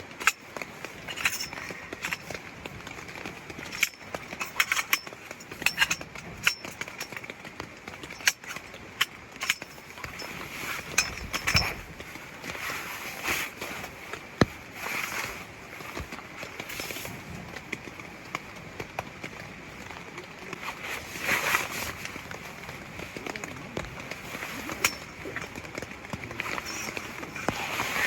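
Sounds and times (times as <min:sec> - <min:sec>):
mountain stream: 0:00.0 - 0:28.0
sharp taps and clinks: 0:00.2 - 0:07.3, 0:07.9 - 0:11.8, 0:24.0 - 0:28.0.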